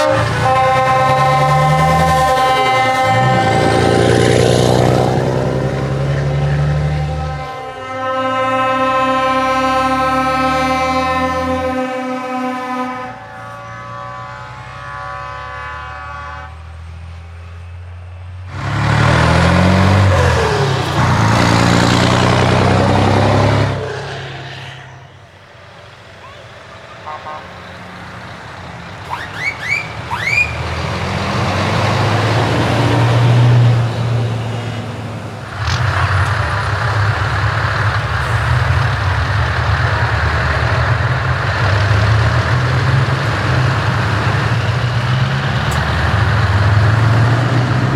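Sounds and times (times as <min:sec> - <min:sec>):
short rising horn toots: 0:00.0 - 0:16.6, 0:18.5 - 0:25.2, 0:28.9 - 0:33.8, 0:35.5 - 0:47.9
many-toned air horn: 0:00.0 - 0:16.9, 0:26.9 - 0:30.9, 0:35.6 - 0:47.9
truck engines and exhaust: 0:00.0 - 0:47.9.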